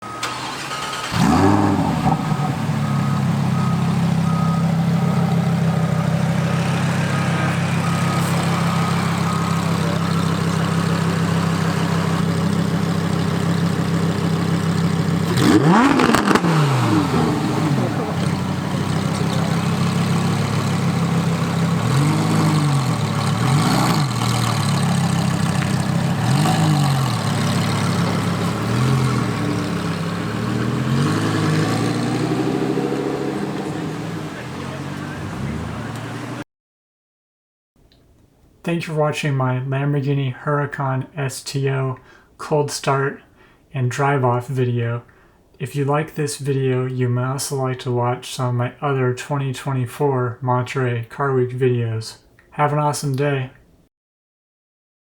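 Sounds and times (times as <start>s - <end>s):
car engine idling: 0.0s - 36.4s
car engine revving: 0.0s - 36.4s
car engine starting: 0.0s - 36.4s.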